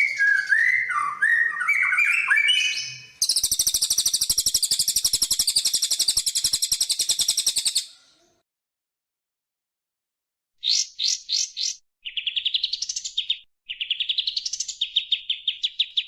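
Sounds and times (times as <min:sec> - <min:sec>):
songbird whistling notes: 0:00.0 - 0:07.9.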